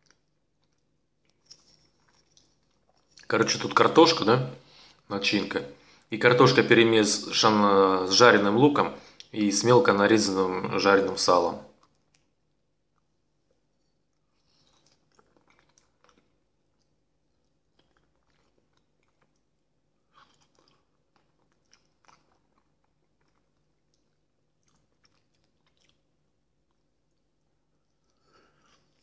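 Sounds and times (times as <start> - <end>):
close-up chewing: 0.0 - 3.6, 11.7 - 29.0
low steady hum: 0.0 - 29.0.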